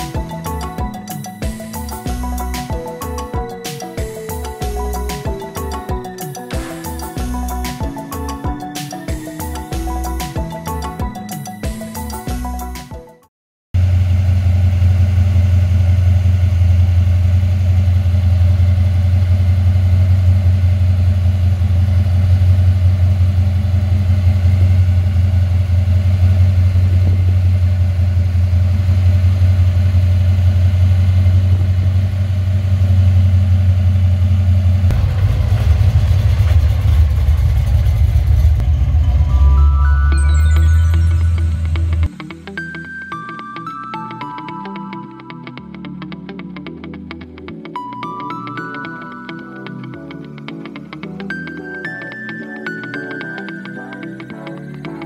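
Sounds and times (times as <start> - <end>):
car engine idling loudly: 13.8 - 39.4.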